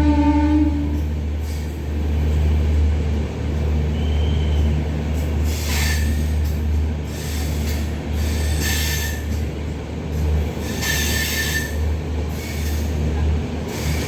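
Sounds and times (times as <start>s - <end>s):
train horn: 0.0s - 1.1s
train rumbling: 0.0s - 14.0s.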